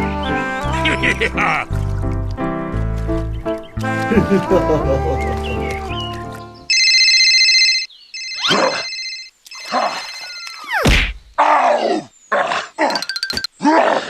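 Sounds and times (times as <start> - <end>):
electronic ringing tone: 6.7 - 10.7.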